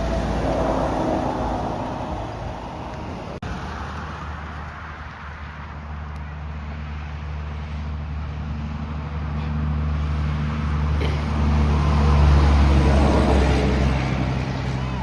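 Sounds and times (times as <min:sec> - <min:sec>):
truck diesel engine running: 0:00.0 - 0:04.7, 0:08.0 - 0:15.0.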